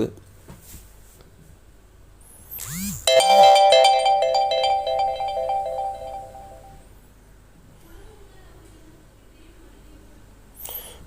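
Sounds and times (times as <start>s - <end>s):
bright electronic chime chord: 3.1s - 6.8s.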